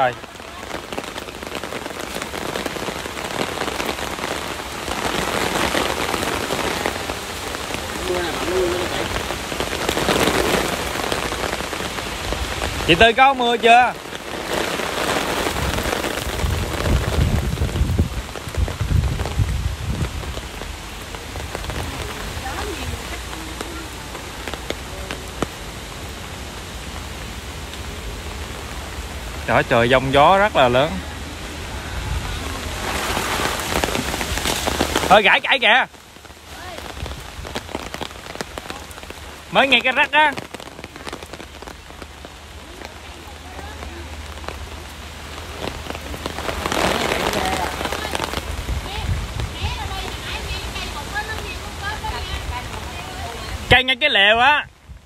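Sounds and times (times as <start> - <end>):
rain pattering on umbrella: 0.0 - 55.0
wind buffeting microphone: 14.2 - 23.2, 31.1 - 35.1, 45.6 - 53.7.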